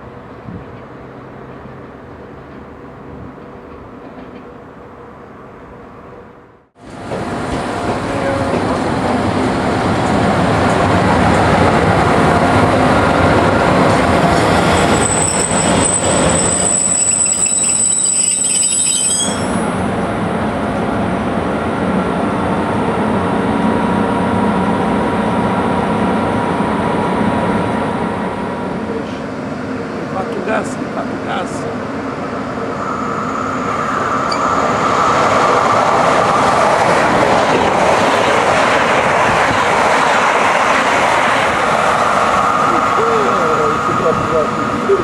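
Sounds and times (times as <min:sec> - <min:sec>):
train running: 0:00.0 - 0:45.0
wheel squeal: 0:14.4 - 0:19.7, 0:32.8 - 0:35.2.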